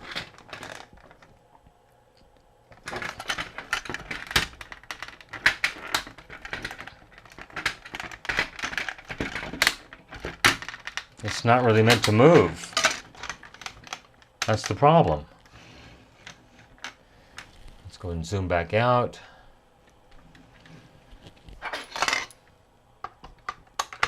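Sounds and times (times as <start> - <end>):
plastic parts clicking and clattering: 0.0 - 1.3, 2.7 - 15.5, 16.2 - 17.5, 21.2 - 22.4, 23.0 - 24.0.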